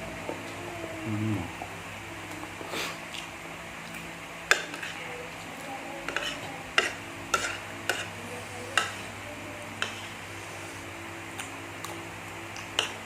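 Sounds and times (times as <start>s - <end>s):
spoon scraping a bowl: 6.1s - 8.1s.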